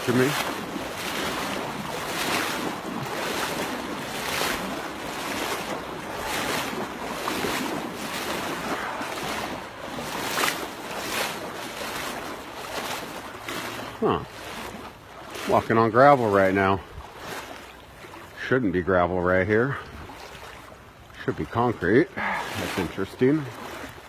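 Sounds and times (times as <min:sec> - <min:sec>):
wind buffeting microphone: 0:00.0 - 0:13.7, 0:16.7 - 0:17.4
footsteps crunching over rough ground: 0:00.0 - 0:18.4.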